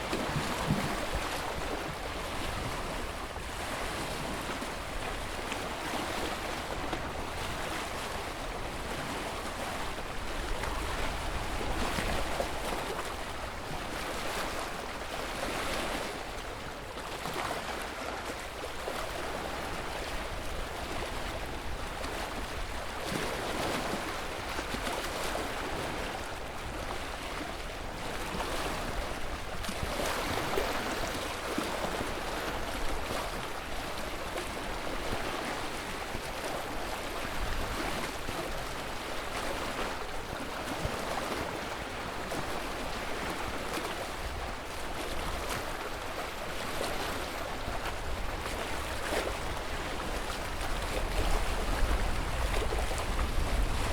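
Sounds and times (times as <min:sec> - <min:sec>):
ocean waves washing in and out: 0:00.0 - 0:53.9.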